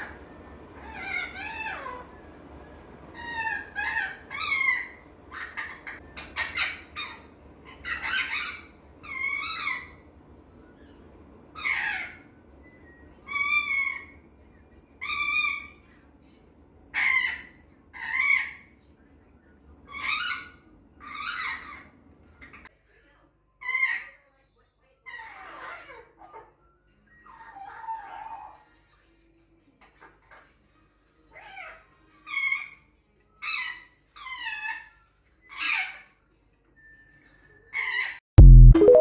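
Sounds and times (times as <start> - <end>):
parrot high-pitched wavering cries: 0.8 - 2.1, 3.2 - 10.0, 11.6 - 12.3, 13.2 - 14.2, 15.0 - 15.8, 16.9 - 18.7, 23.6 - 24.2, 25.0 - 26.6, 27.2 - 28.7, 31.3 - 36.2, 37.7 - 38.2.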